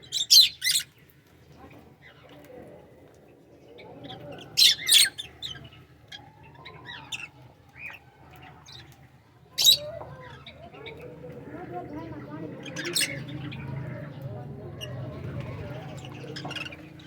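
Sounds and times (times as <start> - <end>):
birds chirping: 0.0 - 1.1, 3.6 - 17.0
loud shrill bird calls: 9.6 - 9.8.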